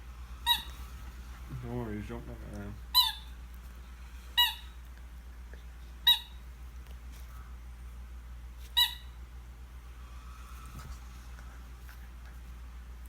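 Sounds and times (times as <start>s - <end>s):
dog toy squeaking: 0.4s - 1.0s, 2.9s - 3.4s, 4.4s - 4.8s, 6.0s - 6.4s, 8.7s - 9.2s.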